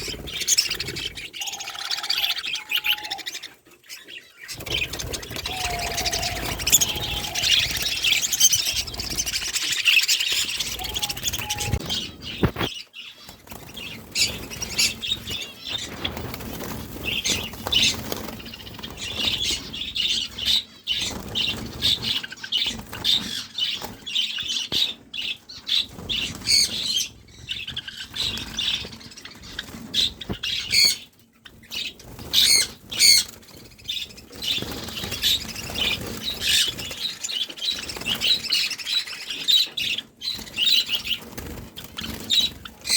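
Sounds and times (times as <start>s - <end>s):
wings fluttering against cages: 0.0s - 3.6s, 4.5s - 42.9s
loud high bird calls: 0.0s - 16.2s
caged birds chirping and squawking: 0.0s - 42.9s.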